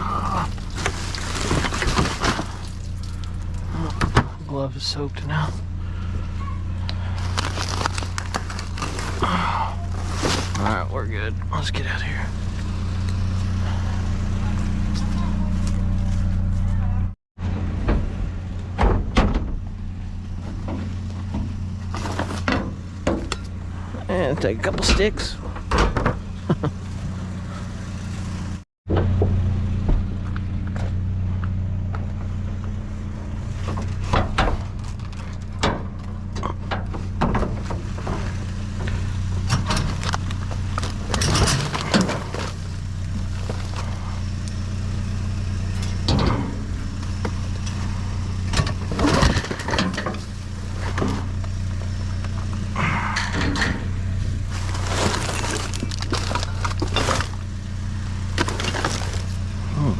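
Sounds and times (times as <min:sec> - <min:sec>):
truck engine running: 0:00.0 - 0:59.9
knocks and rattles: 0:24.2 - 0:27.2, 0:33.6 - 0:43.9, 0:45.7 - 0:47.9, 0:48.5 - 0:51.5.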